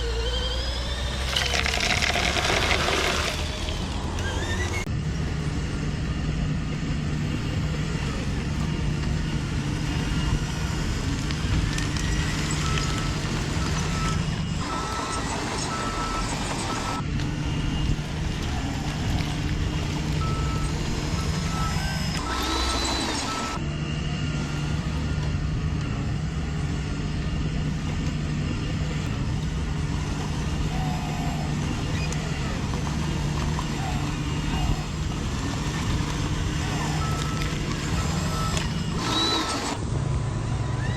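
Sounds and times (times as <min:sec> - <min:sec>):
low engine hum: 0:00.0 - 0:40.9
reversing beeps: 0:11.5 - 0:23.6, 0:35.6 - 0:39.8.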